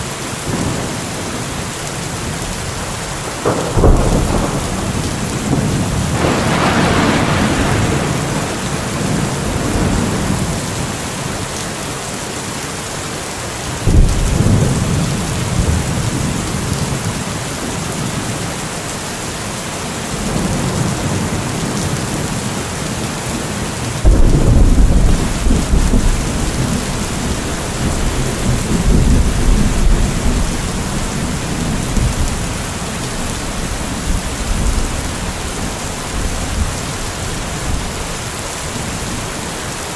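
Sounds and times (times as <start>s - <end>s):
rain hissing: 0.0s - 39.9s
low thunderclaps: 2.2s - 11.3s, 13.8s - 18.0s, 24.0s - 38.0s
rolling thunder: 2.2s - 11.4s, 13.8s - 17.9s, 24.0s - 38.0s.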